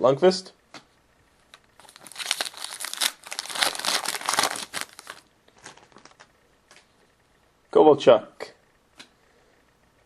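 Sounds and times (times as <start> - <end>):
cards rustling and clicking: 1.5 - 6.9
card pack wrapper tearing: 1.8 - 6.3.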